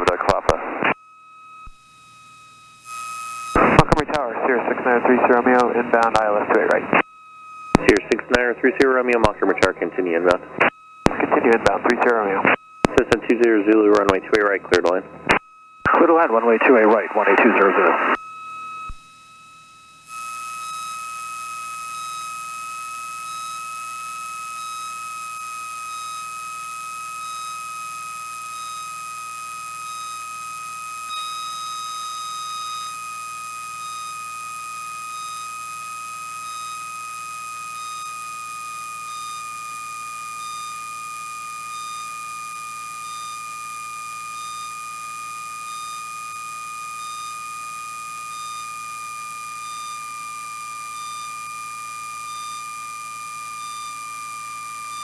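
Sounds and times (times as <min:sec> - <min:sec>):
high-pitched electronic whine: 0:00.0 - 0:55.0
short beeps: 0:31.1 - 0:33.1, 0:33.8 - 0:34.3, 0:35.0 - 0:35.5, 0:36.4 - 0:36.9, 0:37.7 - 0:38.2, 0:40.4 - 0:40.9, 0:41.6 - 0:42.2, 0:42.9 - 0:43.4, 0:44.3 - 0:44.8, 0:45.6 - 0:46.1, 0:46.7 - 0:47.5, 0:48.2 - 0:52.8, 0:53.5 - 0:54.1.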